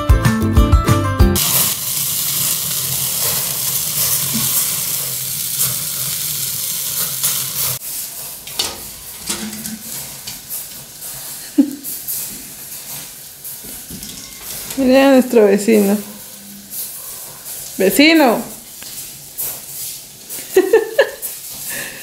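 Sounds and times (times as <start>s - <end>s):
background music: 0.0s - 1.4s
fire crackling: 1.4s - 22.0s
sausages sizzling over embers: 1.4s - 22.0s.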